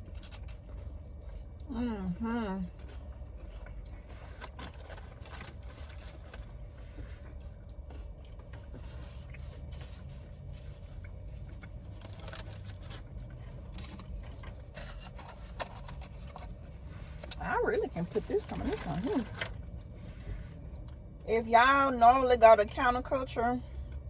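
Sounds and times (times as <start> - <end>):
quiet eating sounds: 0.0 - 21.2
steady low rumble: 0.0 - 24.0
utensil scraping soup container: 13.7 - 20.6.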